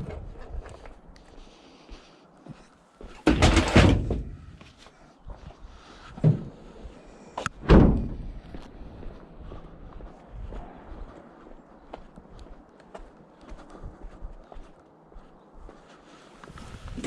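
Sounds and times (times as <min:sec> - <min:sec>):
van door opening with bang: 0:03.2 - 0:04.5, 0:07.6 - 0:08.3
van door slamming shut: 0:07.6 - 0:08.2.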